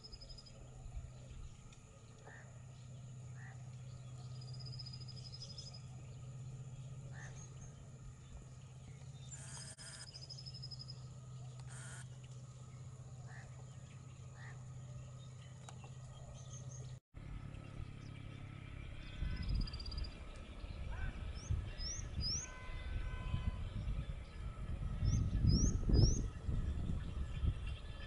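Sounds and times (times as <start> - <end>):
small birds chirping: 0.0 - 18.5
steady low hum: 0.0 - 28.0
wind rumbling on microphone: 18.9 - 28.0.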